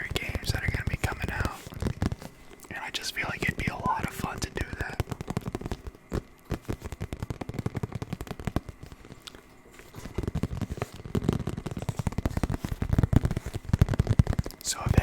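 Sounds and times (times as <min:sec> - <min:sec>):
rapid dense tapping: 0:00.0 - 0:15.0.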